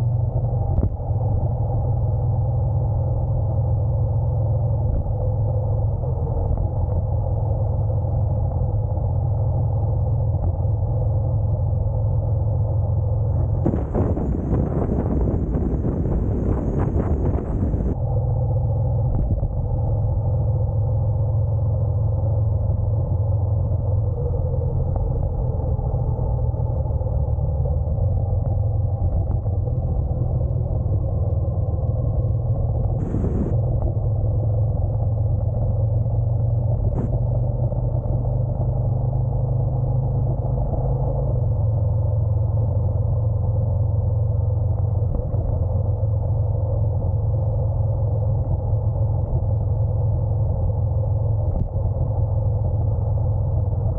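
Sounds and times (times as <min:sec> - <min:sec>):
motorcycle engine running: 0:12.9 - 0:18.0, 0:32.2 - 0:40.1
road noise: 0:12.9 - 0:19.1, 0:22.7 - 0:42.7.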